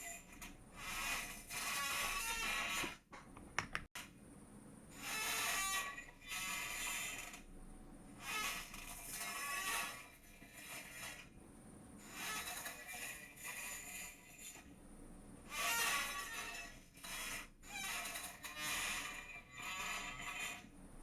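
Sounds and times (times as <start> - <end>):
chair creaking: 0.3 - 3.9, 15.5 - 20.7.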